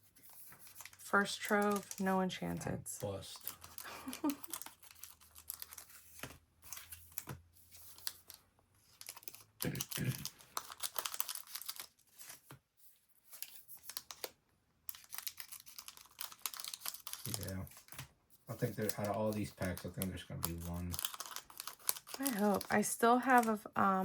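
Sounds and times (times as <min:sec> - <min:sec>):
wrapper crinkling and tearing: 0:03.3 - 0:06.0, 0:07.8 - 0:12.5, 0:14.9 - 0:23.6.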